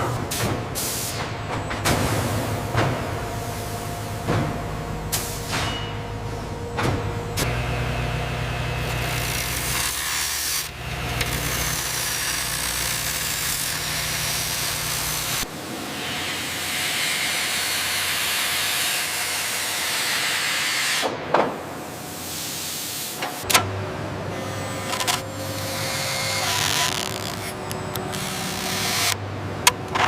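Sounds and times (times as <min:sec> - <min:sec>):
factory machinery grinding: 0:23.4 - 0:30.0.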